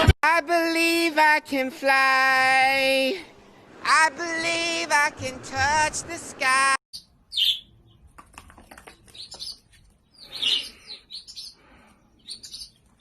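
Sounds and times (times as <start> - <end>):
bird chirping: 7.0 - 13.0.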